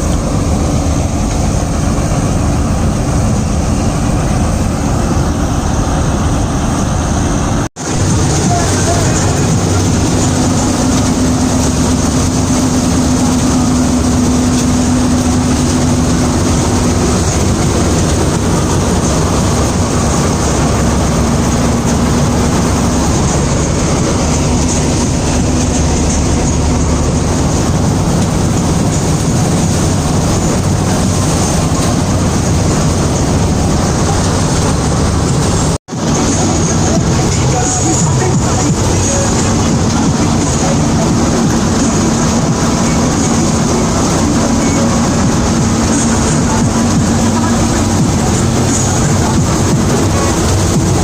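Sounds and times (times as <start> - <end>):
combine harvester engine drone: 0.0 - 51.0.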